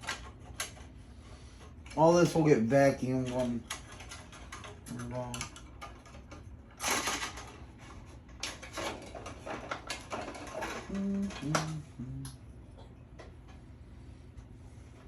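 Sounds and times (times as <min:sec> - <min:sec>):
metal parts clattering and scraping: 0:06.8 - 0:07.6
short low hums: 0:10.8 - 0:12.5.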